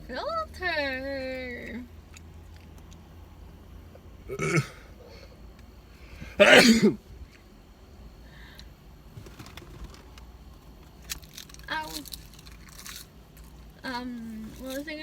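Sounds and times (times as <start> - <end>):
person making throat noises: 4.3 - 4.9, 6.4 - 7.0.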